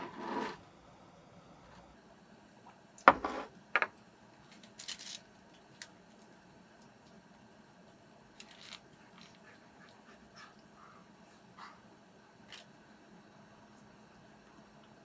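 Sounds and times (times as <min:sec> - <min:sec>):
objects clattering and clicking: 0:03.1 - 0:06.3, 0:08.4 - 0:09.4.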